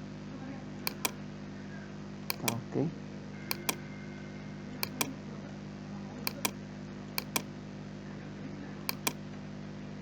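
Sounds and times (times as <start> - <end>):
low electrical hum: 0.0 - 10.0
computer mouse clicking: 0.9 - 1.2, 2.3 - 2.6, 3.5 - 3.8, 4.8 - 5.2, 6.3 - 6.6, 7.2 - 7.5, 8.9 - 9.2.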